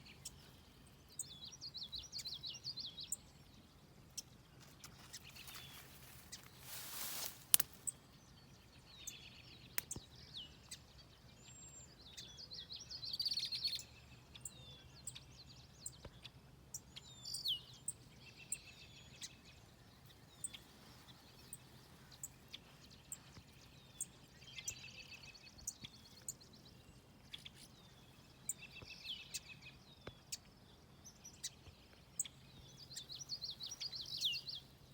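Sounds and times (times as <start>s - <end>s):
faint steady background noise: 0.0s - 34.9s
wild birds singing: 0.0s - 34.9s
small sharp clicks: 7.4s - 7.9s, 9.8s - 10.1s.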